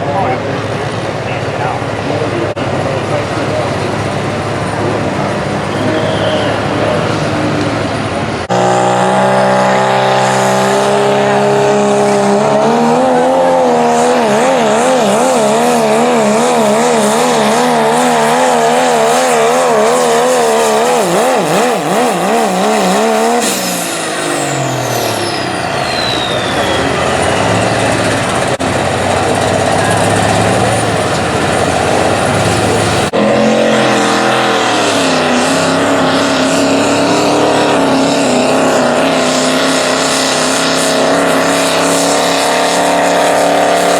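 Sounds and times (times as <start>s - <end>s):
diesel truck engine at full throttle: 0.0s - 43.9s
turbo whistle: 5.7s - 6.9s, 23.5s - 28.0s.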